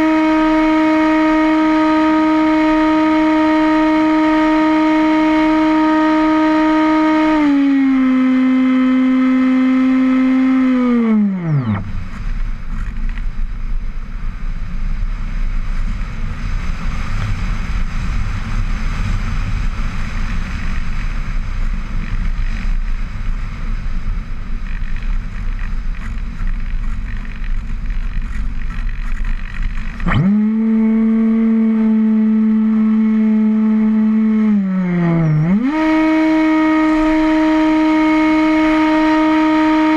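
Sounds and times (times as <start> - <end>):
model aircraft motor humming: 0.0 - 13.3, 24.6 - 39.9.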